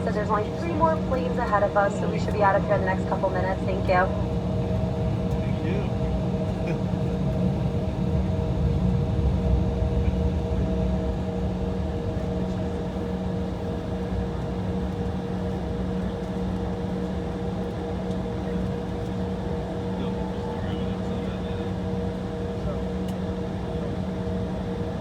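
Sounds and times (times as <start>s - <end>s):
cabin air conditioning: 0.0s - 10.1s
idling jet engines: 0.0s - 25.0s.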